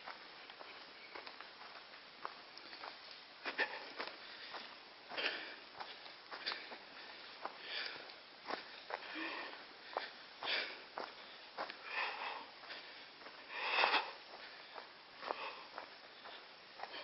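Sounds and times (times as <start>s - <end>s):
footsteps on trail: 0.0s - 17.0s
person breathing hard: 3.4s - 17.0s.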